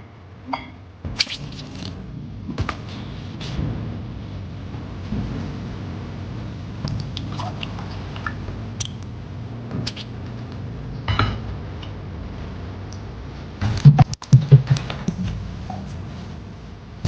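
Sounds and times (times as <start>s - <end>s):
low hum: 0.0s - 17.0s
kitchen knocks and clatters: 11.1s - 11.5s.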